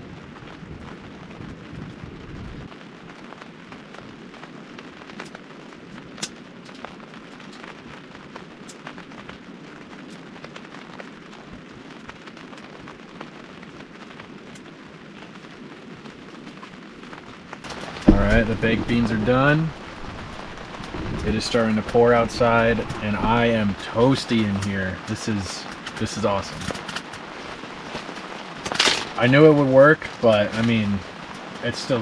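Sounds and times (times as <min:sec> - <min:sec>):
rain on tent fabric: 0:00.0 - 0:32.0
sharp pops and ticks: 0:05.1 - 0:09.4, 0:10.0 - 0:10.7, 0:14.5 - 0:14.8, 0:17.6 - 0:32.0
low rumble: 0:17.7 - 0:26.8.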